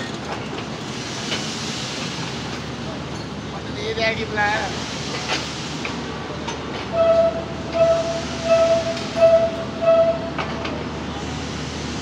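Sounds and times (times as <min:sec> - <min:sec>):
train coaches rumbling on rails: 0:00.0 - 0:12.0
train horn toots: 0:06.9 - 0:10.4.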